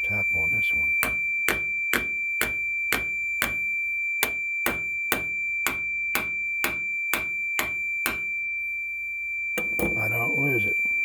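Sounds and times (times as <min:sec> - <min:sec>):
continuity tester beep tone: 0:00.0 - 0:11.0.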